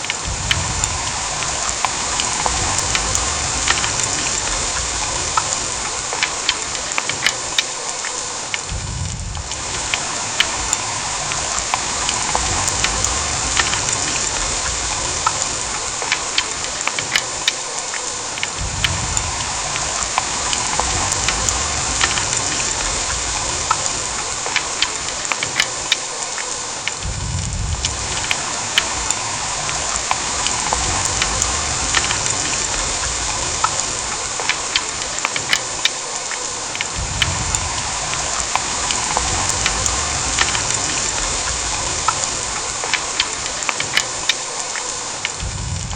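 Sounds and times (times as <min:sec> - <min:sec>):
heavy rain: 0:00.0 - 0:45.9
raindrops striking nearby: 0:00.0 - 0:45.9
low rumble: 0:00.2 - 0:05.9, 0:08.7 - 0:15.8, 0:27.0 - 0:34.2, 0:37.0 - 0:42.6, 0:45.4 - 0:45.9.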